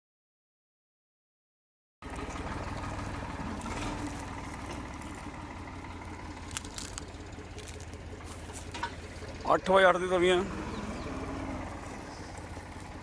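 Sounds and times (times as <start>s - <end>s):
diesel tractor engine idling: 2.0s - 13.0s.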